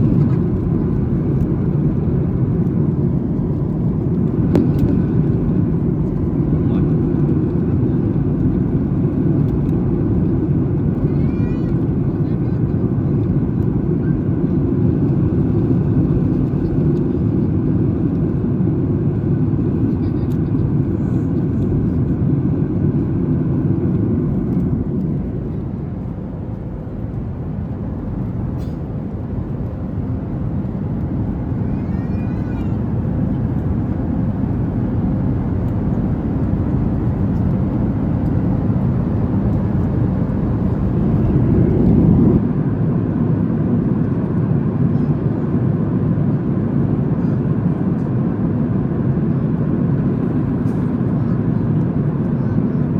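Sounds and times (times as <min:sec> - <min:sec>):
airplane cabin roar: 0:00.0 - 0:52.9.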